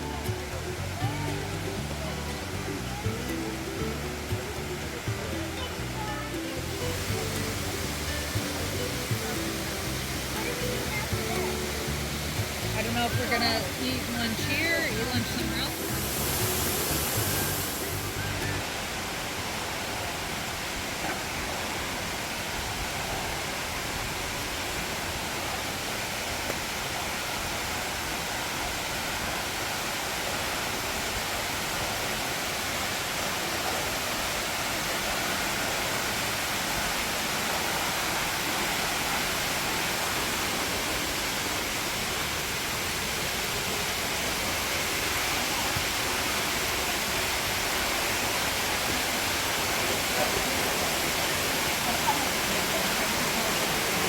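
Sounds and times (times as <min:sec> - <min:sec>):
falling water rushing: 0:00.0 - 0:54.0.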